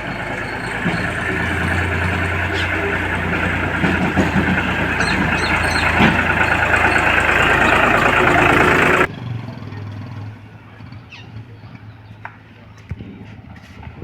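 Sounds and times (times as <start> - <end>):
heavy diesel engine rattling: 0.0 - 9.1
low engine hum: 0.0 - 9.1.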